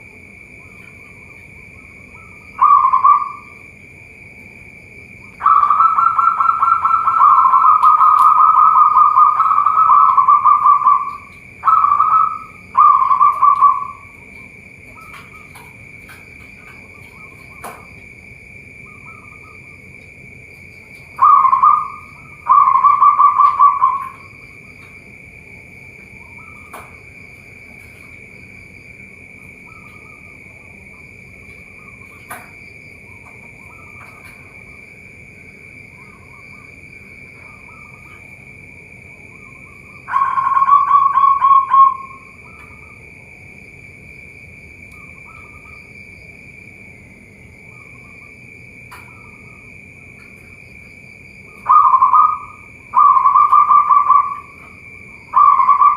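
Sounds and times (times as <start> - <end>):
high insect drone: 0.0 - 55.9
dove cooing: 0.6 - 3.7, 5.2 - 17.9, 20.8 - 24.9, 39.4 - 43.0, 51.4 - 55.9.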